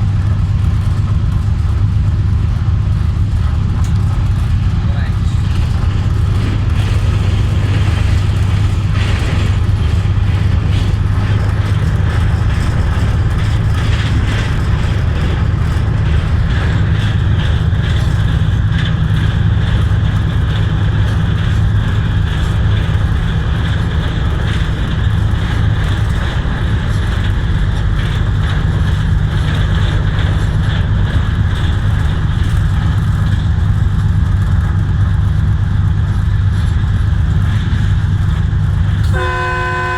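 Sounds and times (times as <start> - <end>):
train running at speed: 0.0 - 39.9.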